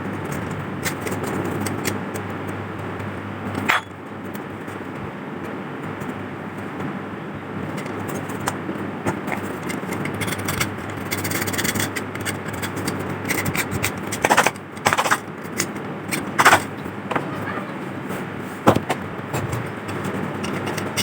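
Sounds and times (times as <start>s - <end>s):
hand scraping rusty metal: 9.1s - 21.0s.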